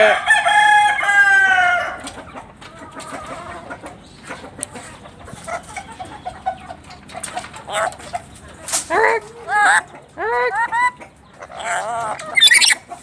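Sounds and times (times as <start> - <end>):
parrot calling: 8.9 - 12.9.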